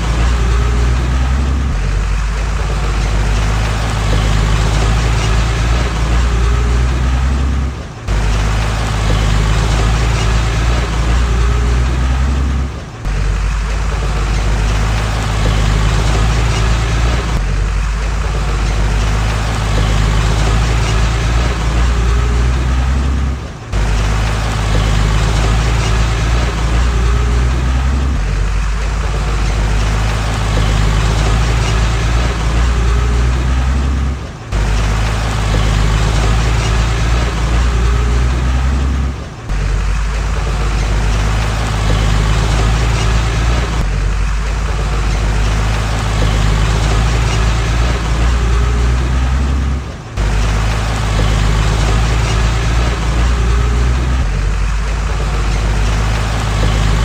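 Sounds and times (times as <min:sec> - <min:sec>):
diesel machinery engine running: 0:00.0 - 0:57.0.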